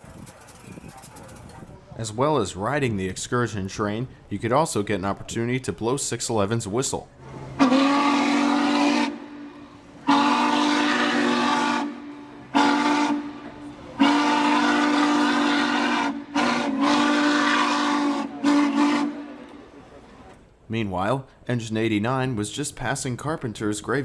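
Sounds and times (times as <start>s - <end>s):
steam whistle blasts: 7.6s - 19.6s.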